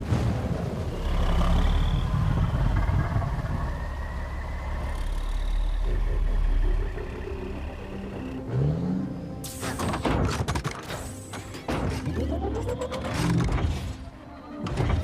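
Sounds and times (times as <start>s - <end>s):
deep steady rumble: 0.4s - 9.4s.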